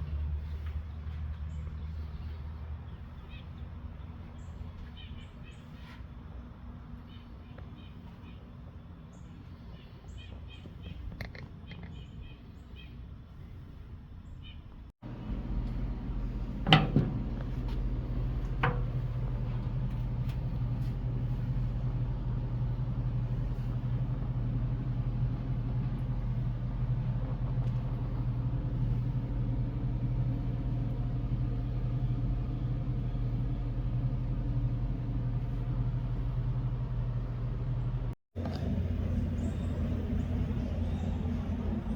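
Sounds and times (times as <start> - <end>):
low mechanical motor rumble: 0.0 - 41.9
birds chirping: 0.4 - 15.2, 38.4 - 41.9.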